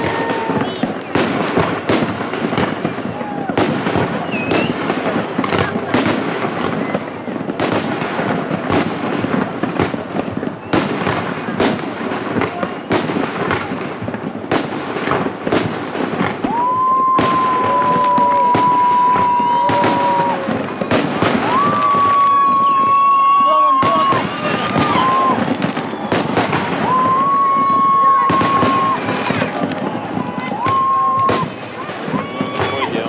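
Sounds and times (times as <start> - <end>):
fireworks bursting: 0.0 - 33.0
fireworks crackle: 0.0 - 33.0
high whistle: 4.2 - 4.8.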